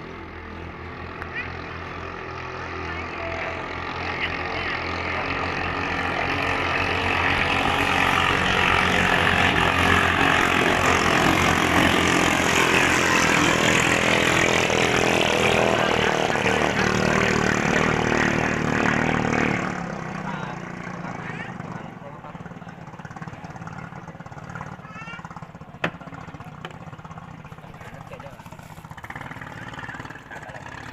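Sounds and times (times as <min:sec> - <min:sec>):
small boat engine racing: 0:00.0 - 0:30.9.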